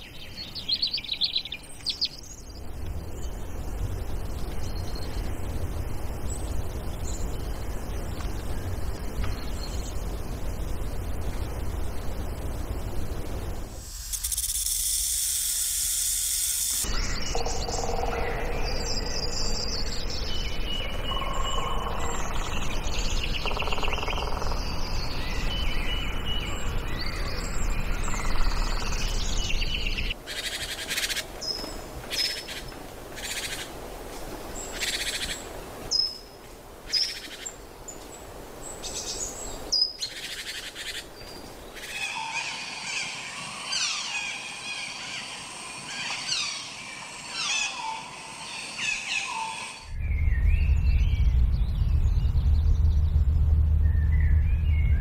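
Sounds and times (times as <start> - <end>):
birds chirping and calling: 16.8 - 33.7, 38.8 - 51.3
steady background rush: 41.8 - 55.0.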